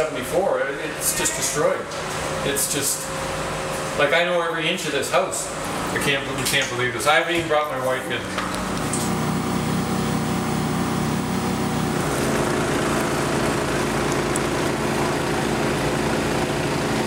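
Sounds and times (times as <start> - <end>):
engine running: 8.4 - 17.0.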